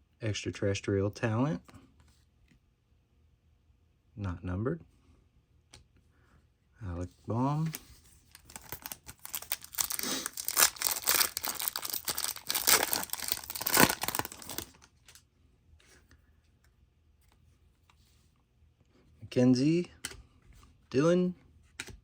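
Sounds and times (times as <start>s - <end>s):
foil wrapper tearing and crinkling: 8.3s - 14.9s
cards clicking: 21.8s - 22.0s.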